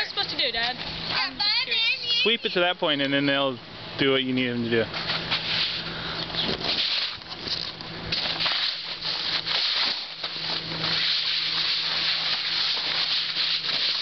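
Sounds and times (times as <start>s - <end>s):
broom sweeping: 4.9s - 5.9s, 8.2s - 14.0s.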